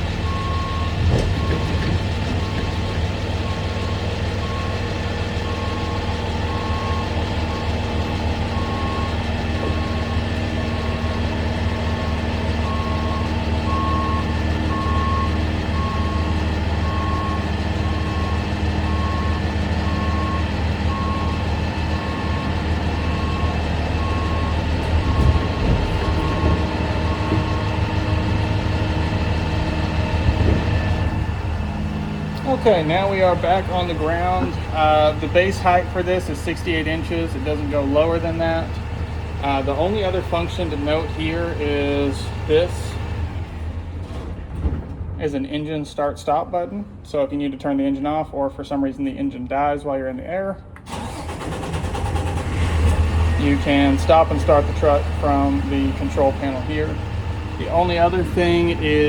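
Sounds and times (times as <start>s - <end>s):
truck engine running: 0.0s - 47.6s, 50.7s - 59.0s.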